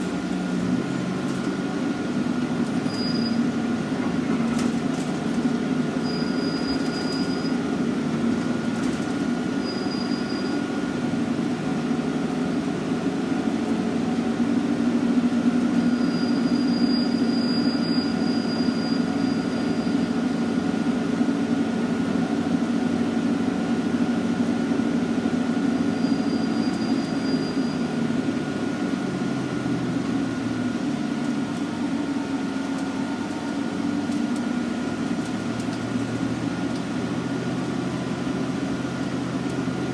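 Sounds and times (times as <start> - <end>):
bus diesel engine running: 0.0 - 39.9
faint high squeals: 2.8 - 3.5, 6.0 - 7.6, 9.6 - 10.6, 15.8 - 20.1, 25.8 - 27.9.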